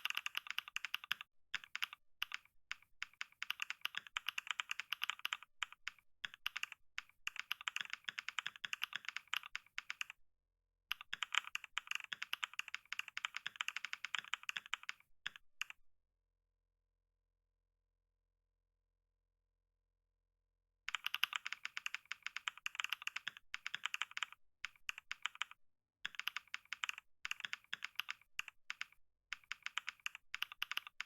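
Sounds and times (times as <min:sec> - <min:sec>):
fast typing on keyboard: 0:00.0 - 0:10.2, 0:10.9 - 0:15.8, 0:20.9 - 0:31.0.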